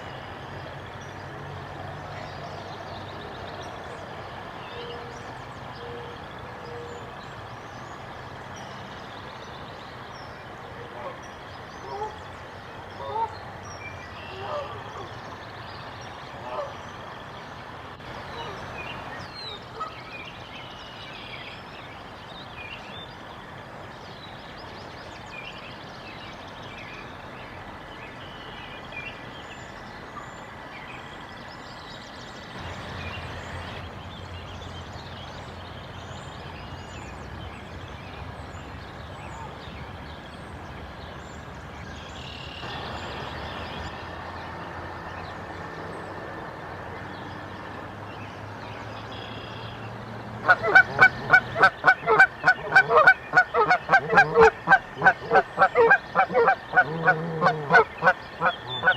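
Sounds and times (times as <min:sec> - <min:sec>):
songbirds chirping: 0:00.0 - 0:58.9.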